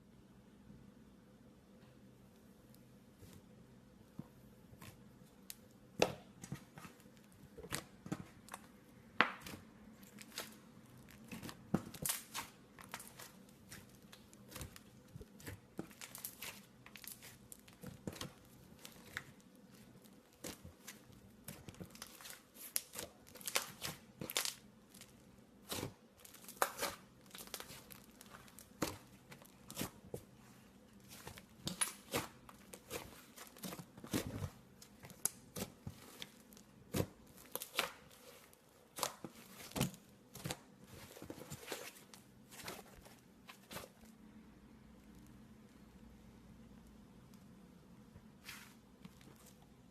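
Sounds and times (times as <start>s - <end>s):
slime crackling and popping: 5.4s - 41.9s.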